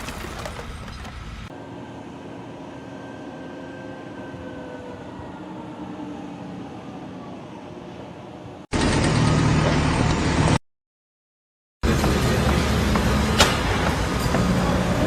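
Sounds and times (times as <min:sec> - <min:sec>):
machine running steadily: 0:11.8 - 0:15.0.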